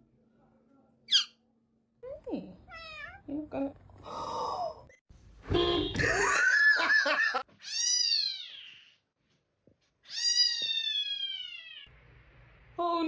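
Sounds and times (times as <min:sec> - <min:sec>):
cat crying: 0:02.7 - 0:03.2.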